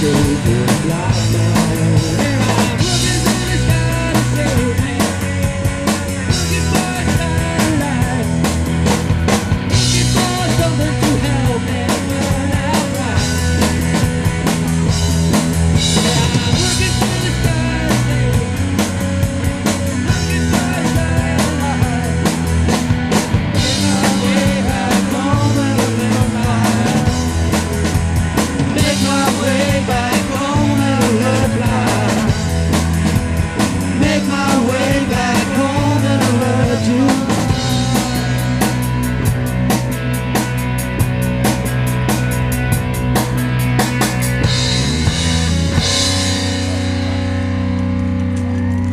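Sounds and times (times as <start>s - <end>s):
drum kit with cymbals: 0.0s - 47.8s
bass guitar: 0.0s - 48.9s
electric guitar: 0.0s - 48.9s.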